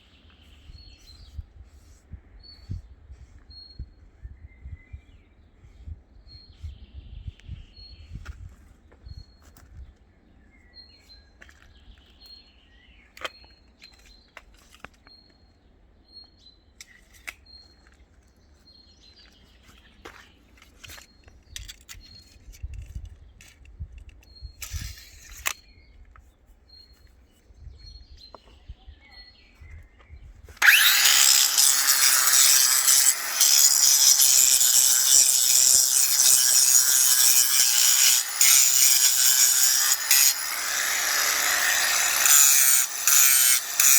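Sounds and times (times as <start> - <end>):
power tool grating: 30.6 - 43.9.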